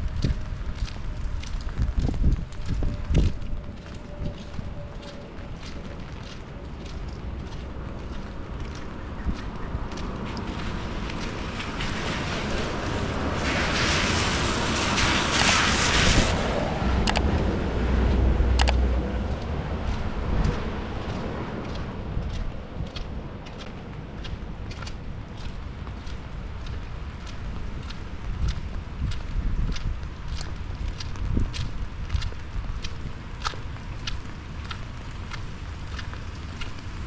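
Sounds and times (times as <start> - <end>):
footsteps on wet pavement: 0.0 - 37.0
wind rumble on microphone: 0.0 - 37.0
tyres hissing on wet road: 9.7 - 16.9
light ticks: 15.4 - 15.6, 17.0 - 17.4, 18.6 - 18.8.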